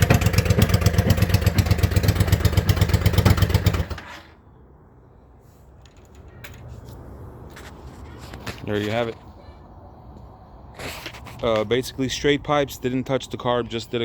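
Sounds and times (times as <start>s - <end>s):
motorcycle engine running: 0.0s - 4.0s.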